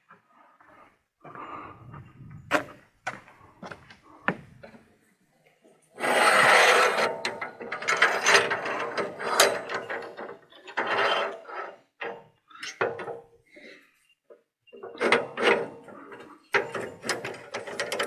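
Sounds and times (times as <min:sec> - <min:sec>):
wood scraping: 0:02.2 - 0:04.5.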